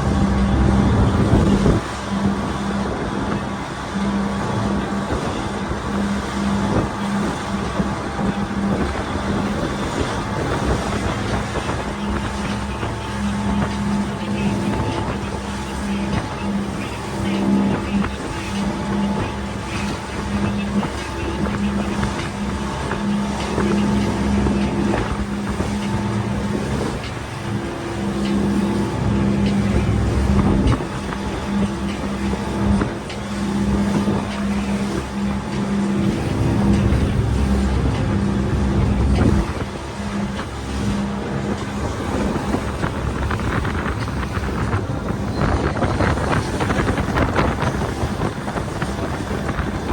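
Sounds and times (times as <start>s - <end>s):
wind noise: 0.0s - 6.0s, 28.5s - 49.9s
boat engine drone: 0.0s - 49.9s
hull splashing through waves: 0.0s - 49.9s
low hum: 0.0s - 49.9s
rushing water: 0.0s - 49.9s.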